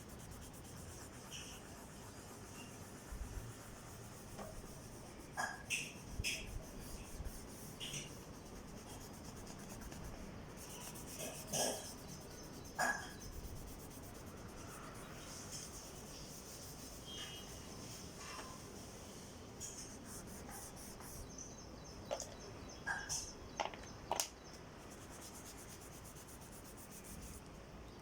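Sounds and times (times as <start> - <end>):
oil pastel scraping on paper: 0.0 - 21.3
faint steady hiss: 0.0 - 28.0.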